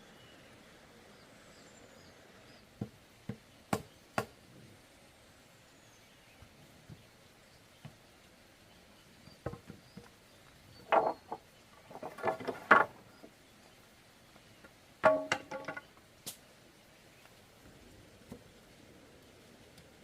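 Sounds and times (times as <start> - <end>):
hollow bamboo poles knocking: 9.4 - 10.2, 10.8 - 13.3, 15.0 - 15.9.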